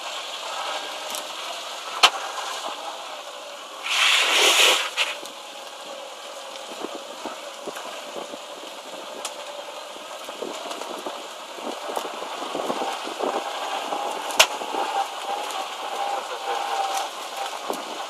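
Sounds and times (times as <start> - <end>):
small ticks and crackles: 0.0 - 18.0.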